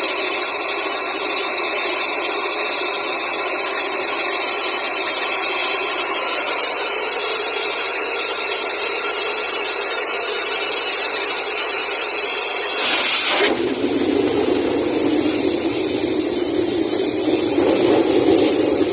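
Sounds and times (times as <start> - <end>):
compressor engine running: 0.0 - 18.9
rush of air and spraying water: 11.0 - 18.9.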